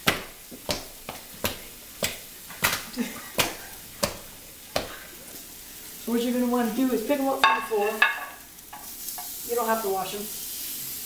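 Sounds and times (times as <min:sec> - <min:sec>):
feet stomping on potatoes: 0:00.0 - 0:05.2.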